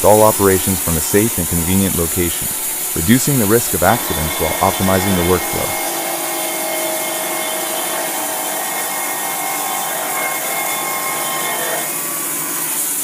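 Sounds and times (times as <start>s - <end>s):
band sawmill running: 0.0s - 13.0s
whining tones: 2.2s - 5.9s.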